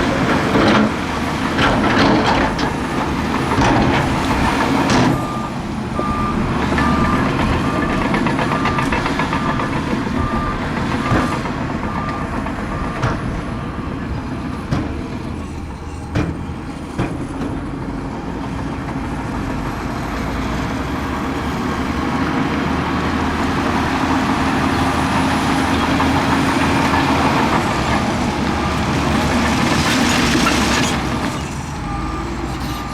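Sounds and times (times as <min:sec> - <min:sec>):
heavy diesel machinery running: 0:00.0 - 0:32.9
reversing alarm beeping: 0:04.3 - 0:14.2, 0:25.7 - 0:32.9.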